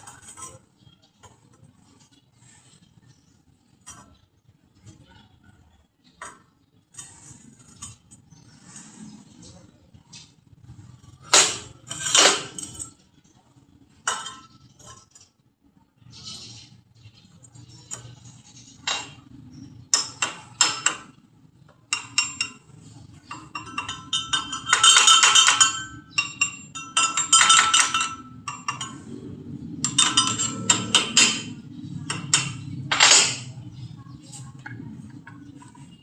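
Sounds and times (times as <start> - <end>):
metal pieces clinking and clattering: 23.3 - 29.1, 29.8 - 33.5.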